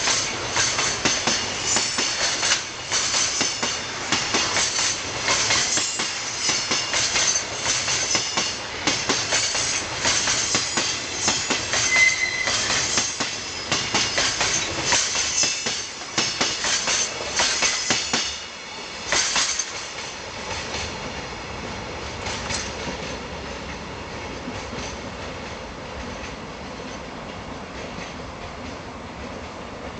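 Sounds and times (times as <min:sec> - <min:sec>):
train wheels clacking over rail joints: 0:00.0 - 0:21.3, 0:22.0 - 0:29.6
train rumble: 0:00.0 - 0:29.9
high squeal: 0:10.5 - 0:14.8.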